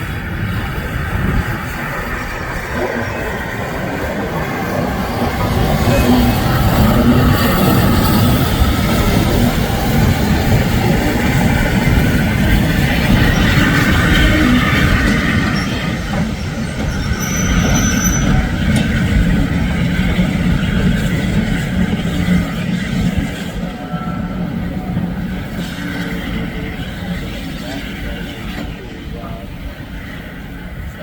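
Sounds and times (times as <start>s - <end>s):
steam train rushing on rails: 0.0s - 31.0s
wheel squeal: 12.5s - 20.8s.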